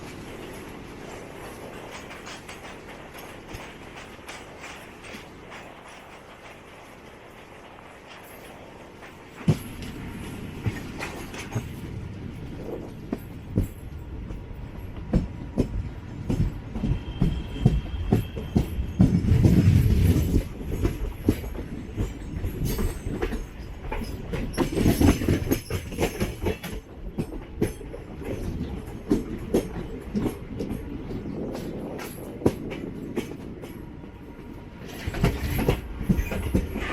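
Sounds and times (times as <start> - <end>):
train rumbling on track: 0.0 - 36.9
wheel clicks over rail joints: 1.2 - 7.0, 15.1 - 33.8.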